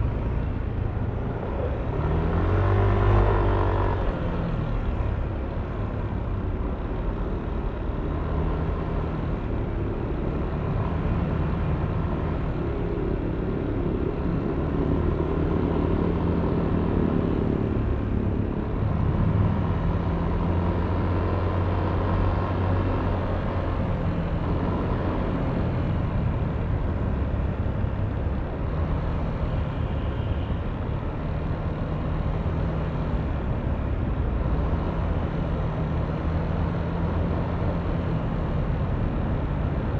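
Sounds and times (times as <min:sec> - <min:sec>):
road and traffic noise: 0:00.0 - 0:39.9.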